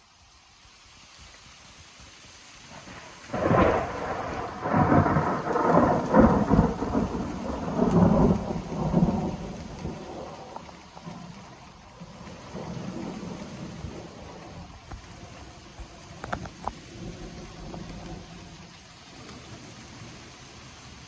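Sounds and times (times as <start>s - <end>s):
steady rain falling: 0.0s - 21.0s
thunder crack and rumble: 2.7s - 20.2s.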